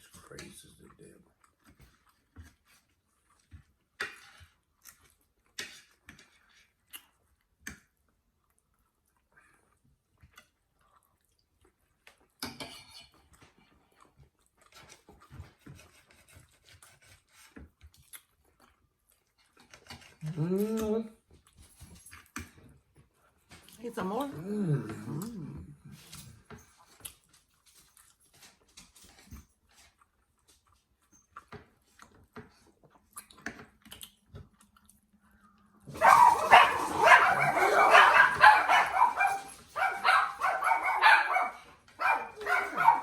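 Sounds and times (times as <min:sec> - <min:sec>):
chewing: 0:00.1 - 0:43.0.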